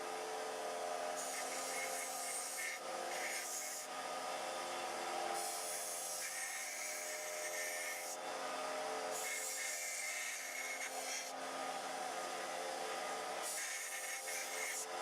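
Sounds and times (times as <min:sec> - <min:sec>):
belt sander running: 0:00.0 - 0:15.0
steel blade grinding on belt: 0:01.2 - 0:03.9, 0:05.4 - 0:08.2, 0:09.1 - 0:11.4, 0:13.4 - 0:15.0.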